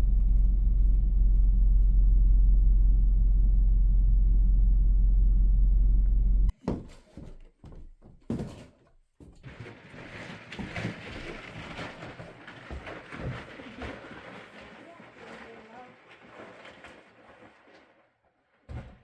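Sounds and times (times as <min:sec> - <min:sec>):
road rumble inside moving car: 0:00.0 - 0:06.5
knocks and thumps: 0:06.5 - 0:17.7, 0:18.7 - 0:19.0.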